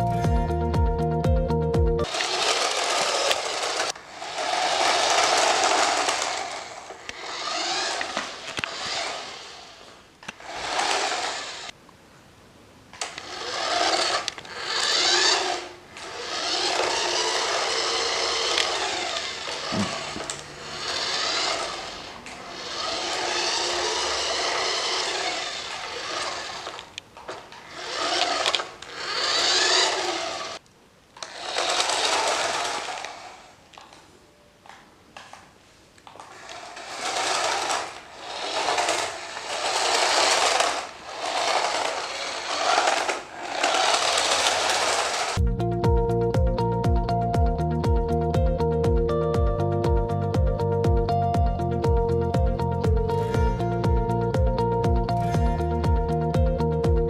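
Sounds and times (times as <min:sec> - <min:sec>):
toy car motors whirring: 0:02.0 - 0:11.8, 0:13.0 - 0:30.6, 0:31.2 - 0:34.0, 0:36.0 - 0:45.4.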